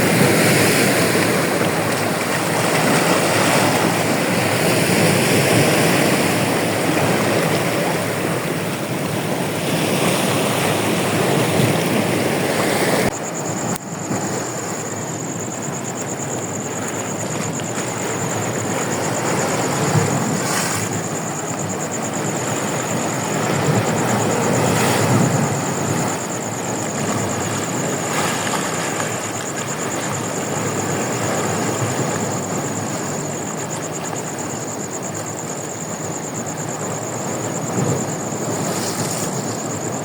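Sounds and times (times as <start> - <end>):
ocean surf: 0.0 - 40.0.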